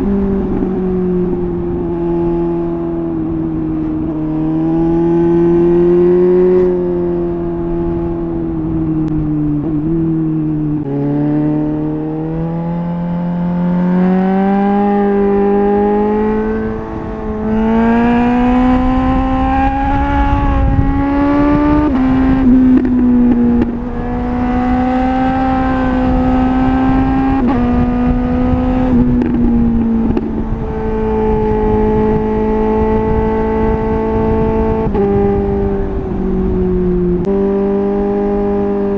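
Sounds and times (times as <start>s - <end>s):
motorcycle engine shifting gears: 0.0s - 38.9s.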